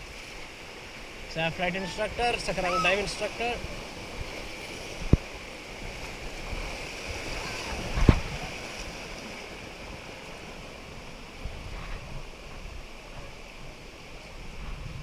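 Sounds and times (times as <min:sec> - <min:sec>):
river water rushing: 0:00.0 - 0:14.6
wind rumble on microphone: 0:03.6 - 0:15.0.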